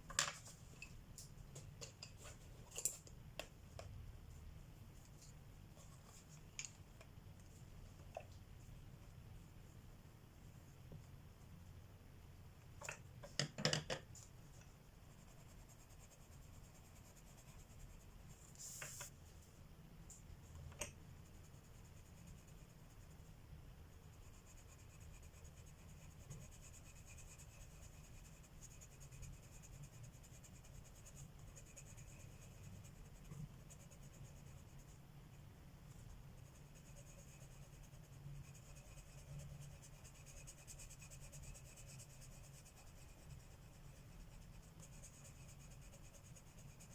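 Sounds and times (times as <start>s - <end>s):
pencils scratching on paper: 35.9s - 46.9s.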